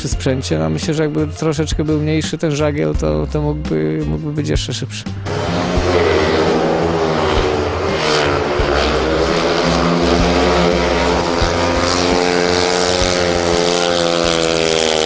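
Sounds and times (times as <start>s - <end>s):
motorcycle engine running hard: 5.2s - 15.0s.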